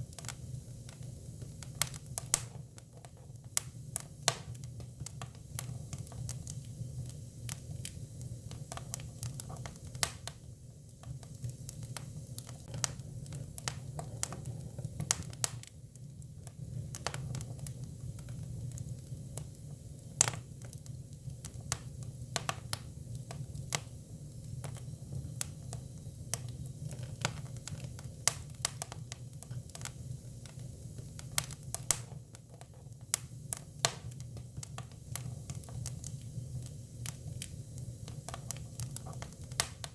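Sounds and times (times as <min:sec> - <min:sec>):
firewood crackling and popping: 0:00.0 - 0:39.9.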